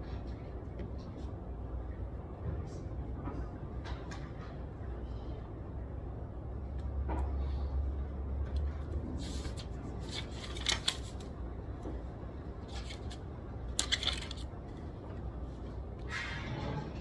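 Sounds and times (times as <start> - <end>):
steady low hum: 0.0 - 17.0
clicks and rustles of small objects: 12.6 - 15.2.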